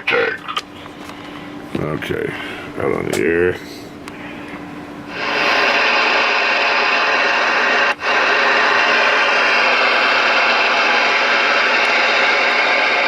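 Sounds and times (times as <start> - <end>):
radio static hiss: 5.1 - 13.0.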